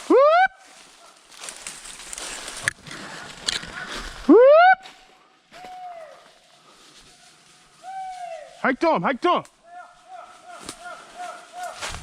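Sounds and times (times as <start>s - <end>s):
man whooping holler: 4.3s - 4.8s.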